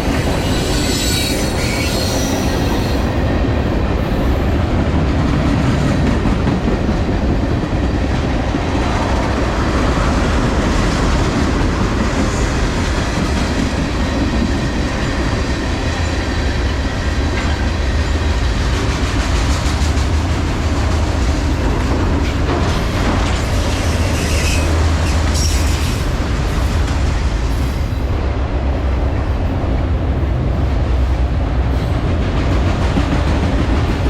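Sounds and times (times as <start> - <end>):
train rumbling past: 0.0 - 34.0.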